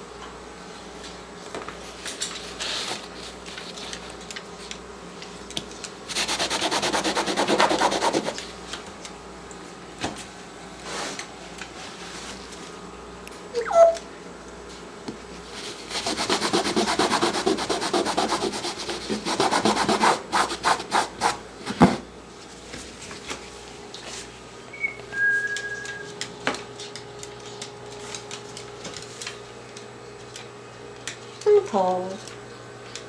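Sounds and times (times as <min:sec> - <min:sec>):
parrot whistling: 0:13.6 - 0:14.0, 0:24.7 - 0:26.2.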